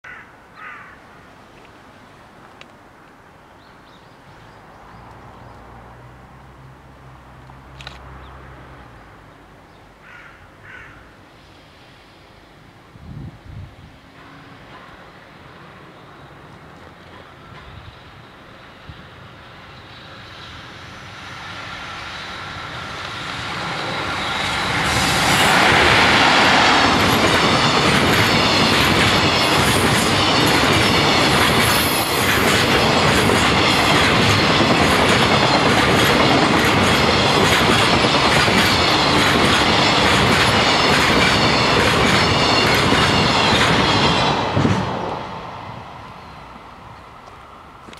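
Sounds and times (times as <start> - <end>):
electric locomotive passing: 1.3 - 47.9
rhythmic clatter of train wheels: 13.9 - 46.6.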